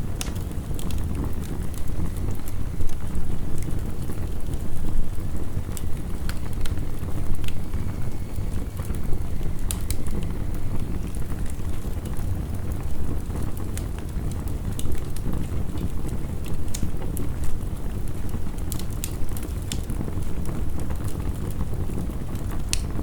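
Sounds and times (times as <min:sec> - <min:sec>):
heavy rain: 0:00.0 - 0:23.0
wood fire crackling and popping: 0:00.0 - 0:23.0.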